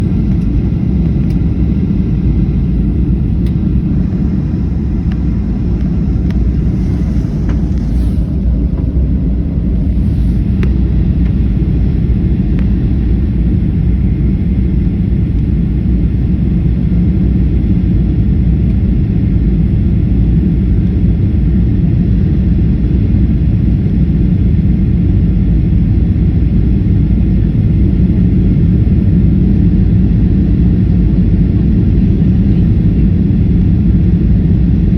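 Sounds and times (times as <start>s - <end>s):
jet airliner engines rumbling: 0.0s - 34.9s.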